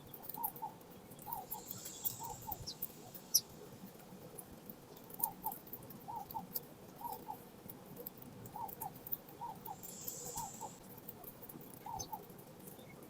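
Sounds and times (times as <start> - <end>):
birds pecking at seed: 0.0 - 13.0.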